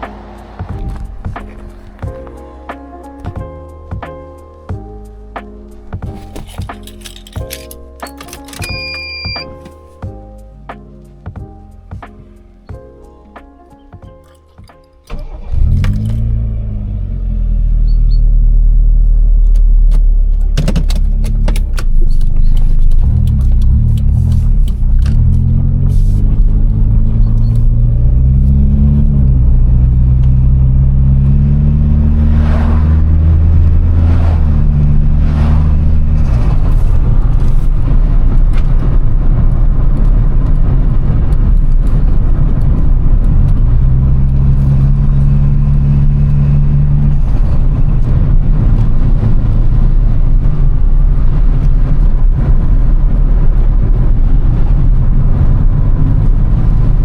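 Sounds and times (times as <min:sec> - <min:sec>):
car engine accelerating: 0:00.0 - 0:10.0, 0:11.8 - 0:57.0.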